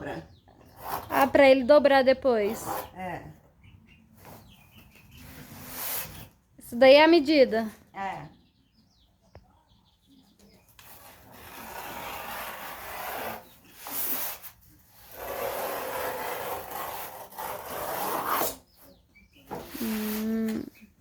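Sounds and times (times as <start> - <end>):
tool scraping cardboard: 5.2 - 6.3, 10.8 - 18.7, 19.5 - 20.5.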